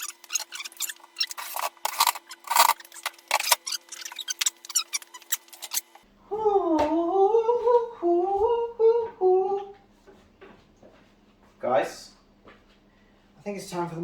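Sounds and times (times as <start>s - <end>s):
person humming a tune: 6.3s - 9.9s.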